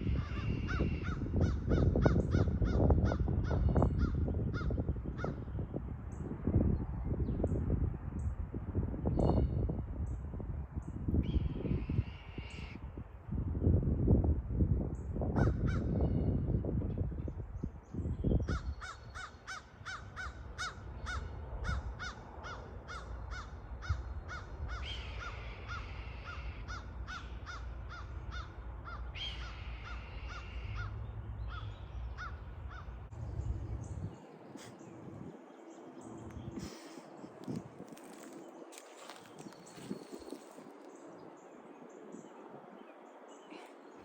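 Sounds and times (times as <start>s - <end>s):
crows calling: 0.0s - 5.4s, 15.4s - 16.0s, 18.4s - 33.0s
birds of prey crying: 0.0s - 5.6s, 11.2s - 12.9s, 18.2s - 33.0s, 33.8s - 44.0s
loud low rumble: 30.7s - 34.2s.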